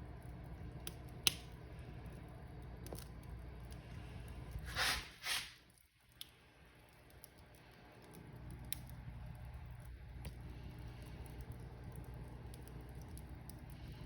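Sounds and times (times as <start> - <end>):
fire crackling and popping: 0.0 - 14.0
low rumble of flame: 0.0 - 14.0
brief hissing bursts: 4.7 - 5.6.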